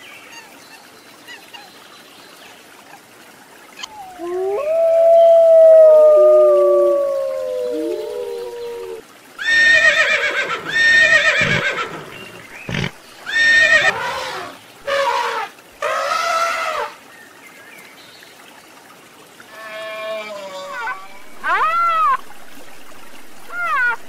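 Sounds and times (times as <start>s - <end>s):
dog howling: 3.9s - 9.0s, 20.2s - 22.2s
horses whinnying: 7.9s - 16.9s.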